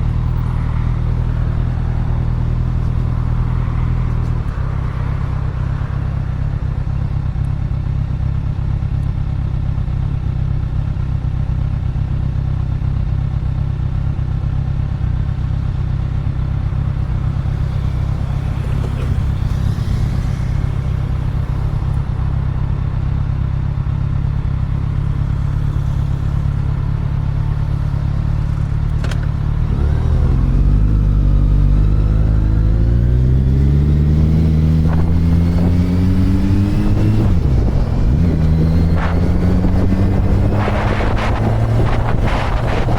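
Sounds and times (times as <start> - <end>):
motorcycle engine running: 0.0 - 42.9
wind buffeting microphone: 29.4 - 42.9.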